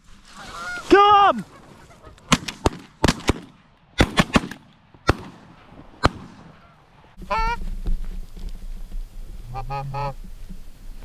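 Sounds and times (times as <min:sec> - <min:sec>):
shotgun blasts: 0:02.3 - 0:06.6.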